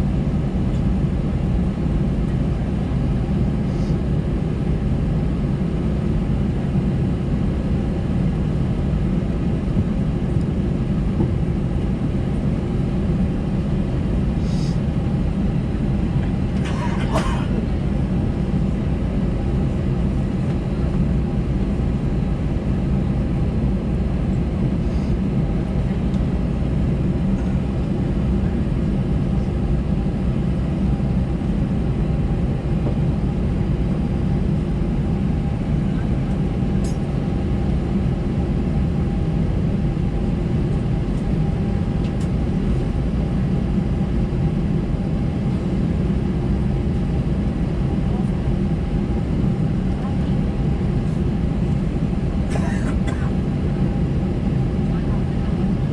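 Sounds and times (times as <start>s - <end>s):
jet engines idling rumble: 0.0s - 55.9s.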